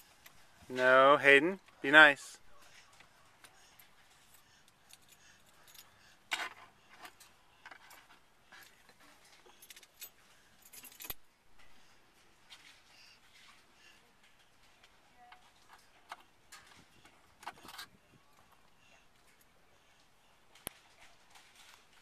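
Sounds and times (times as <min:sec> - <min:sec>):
keys jingling: 0:07.0 - 0:11.2.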